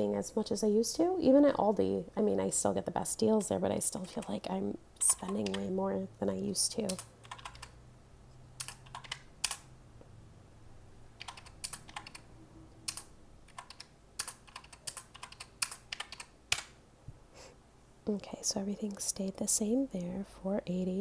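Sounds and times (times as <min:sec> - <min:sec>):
calculator keys clicking: 0:05.1 - 0:05.7, 0:06.9 - 0:07.8, 0:08.6 - 0:09.6, 0:11.2 - 0:12.2, 0:12.9 - 0:16.7.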